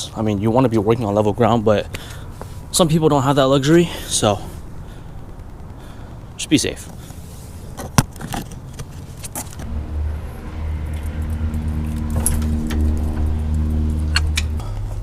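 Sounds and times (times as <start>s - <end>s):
low engine-like hum: 9.6s - 15.0s.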